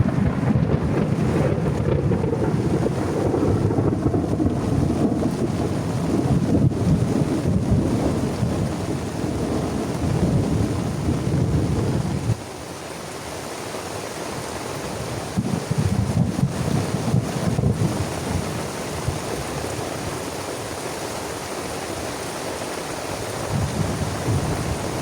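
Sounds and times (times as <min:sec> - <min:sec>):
low thunder rumble: 0:00.0 - 0:12.4, 0:15.0 - 0:19.4, 0:23.5 - 0:25.0
rain hissing: 0:00.0 - 0:25.0.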